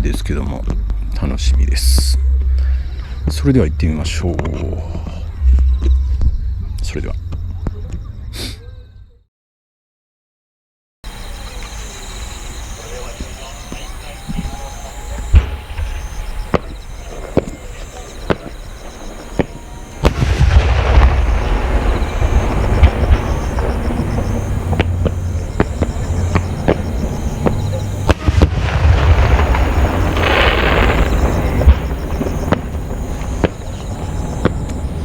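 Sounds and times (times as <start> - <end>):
fireworks bursting: 11.1 - 35.0
fireworks crackling: 11.1 - 35.0.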